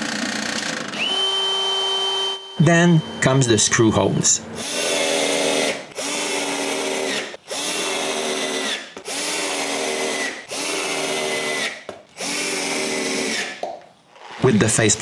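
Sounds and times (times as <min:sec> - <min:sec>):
electric drill whining: 0:00.0 - 0:02.6, 0:04.6 - 0:13.6.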